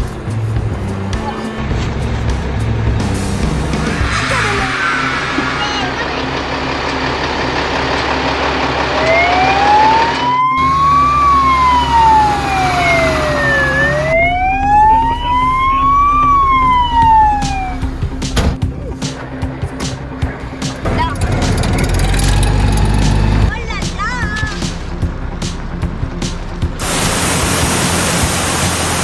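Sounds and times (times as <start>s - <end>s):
background rumble: 0.0s - 4.7s
siren wailing: 8.8s - 18.2s.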